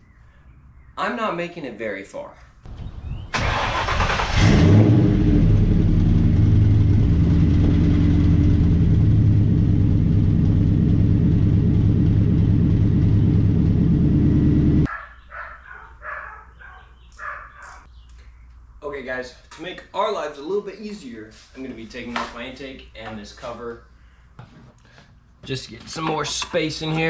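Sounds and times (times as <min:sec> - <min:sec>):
truck engine idling: 0:05.5 - 0:14.9.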